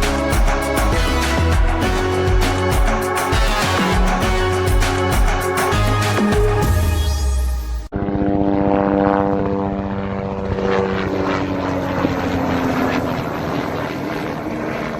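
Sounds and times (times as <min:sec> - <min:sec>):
propeller aircraft engine droning: 0:00.0 - 0:07.0, 0:07.9 - 0:14.9
music: 0:00.0 - 0:07.9.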